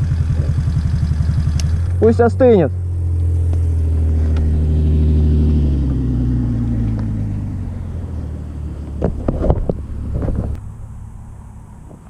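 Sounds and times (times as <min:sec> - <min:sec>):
moped engine idling: 0:00.0 - 0:05.0.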